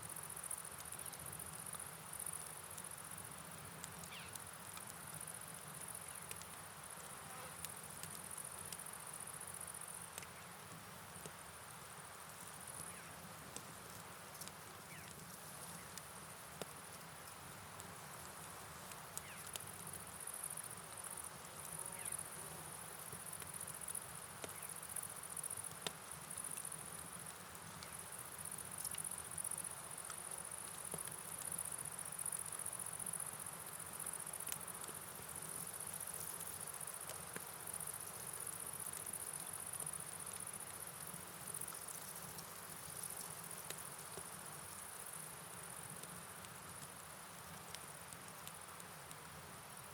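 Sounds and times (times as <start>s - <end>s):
rain: 0.0s - 49.9s
light ticks: 6.1s - 8.9s, 10.1s - 10.4s, 13.6s - 22.2s, 25.4s - 28.0s, 28.8s - 30.2s, 34.0s - 35.0s
crickets trilling: 18.8s - 46.0s.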